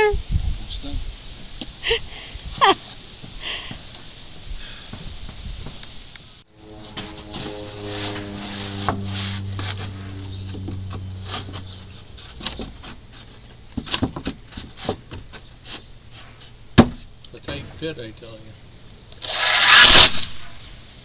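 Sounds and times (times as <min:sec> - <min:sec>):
low hum: 0:06.4 - 0:13.6
knocks on wooden boards: 0:16.8 - 0:17.0.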